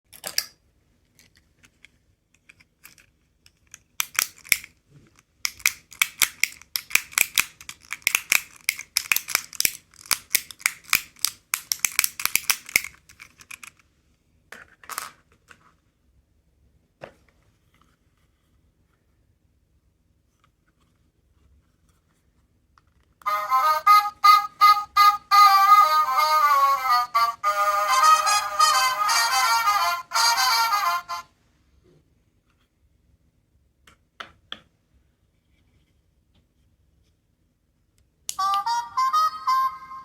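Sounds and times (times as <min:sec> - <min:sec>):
plastic capsule toys clicking: 0:01.2 - 0:13.8.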